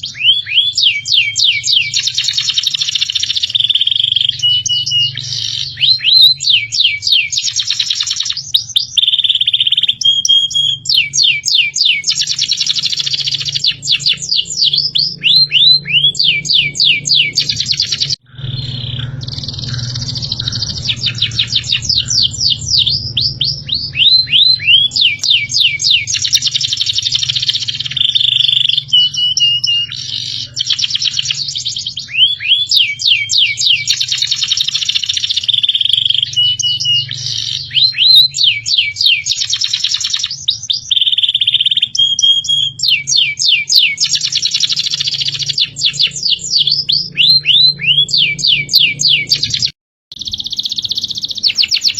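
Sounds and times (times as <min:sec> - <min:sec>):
songbird whistling and trilling: 0:00.0 - 0:51.9
steady low hum: 0:13.3 - 0:29.1.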